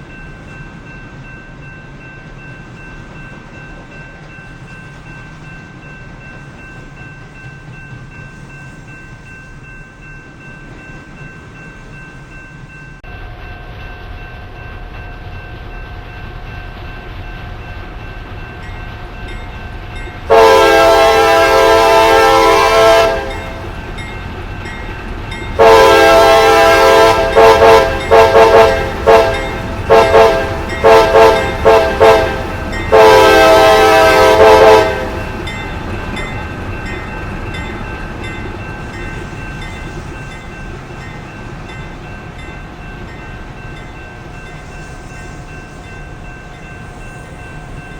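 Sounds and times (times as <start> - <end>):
train rumble: 0.0 - 47.9
locomotive air horn blasts: 20.3 - 23.6, 25.6 - 35.2.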